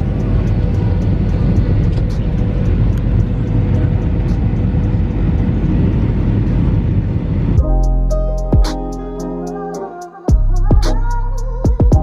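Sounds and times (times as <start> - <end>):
vehicle rumble: 0.0 - 9.2.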